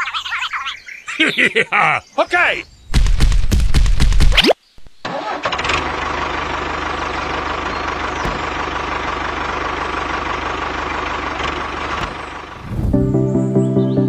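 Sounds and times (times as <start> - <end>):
tractor engine chugging: 5.1 - 12.6.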